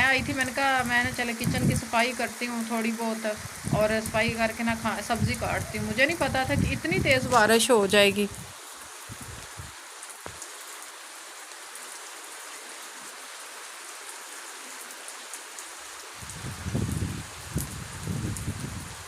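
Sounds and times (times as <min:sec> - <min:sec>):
heavy rain hiss: 0:00.0 - 0:19.0
low rumbling: 0:03.2 - 0:07.6.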